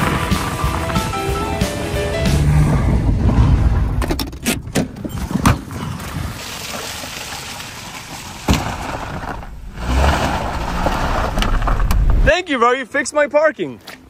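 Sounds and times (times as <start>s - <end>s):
vehicle noise: 0.0s - 6.3s, 7.2s - 12.5s
cars crashing knocks: 8.4s - 12.3s.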